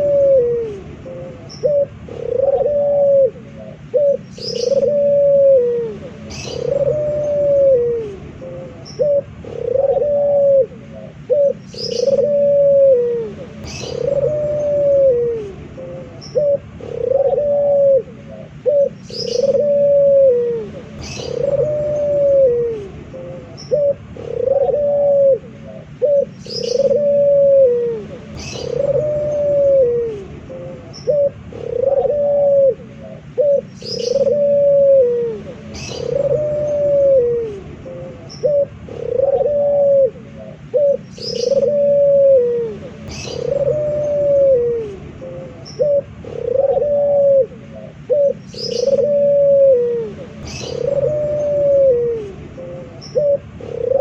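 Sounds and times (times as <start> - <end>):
dove cooing: 0.0 - 54.0
small bird chirps: 4.0 - 4.9, 43.0 - 46.8, 50.3 - 53.4.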